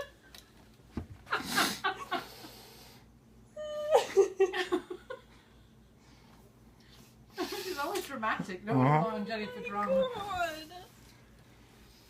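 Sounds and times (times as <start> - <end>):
people laughing breathily: 1.3 - 2.6.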